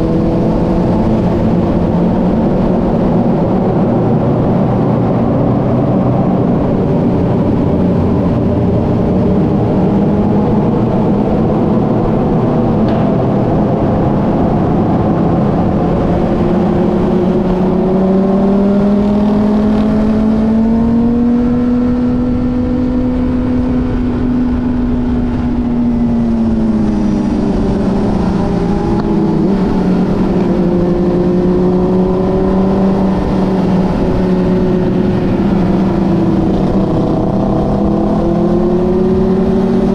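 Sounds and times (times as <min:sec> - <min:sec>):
steady rushing noise: 0:00.0 - 0:39.9
motorcycle engine running: 0:06.5 - 0:39.9.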